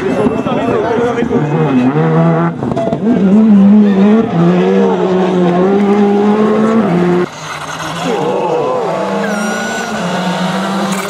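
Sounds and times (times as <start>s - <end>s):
car engine revving hard: 1.3s - 11.0s.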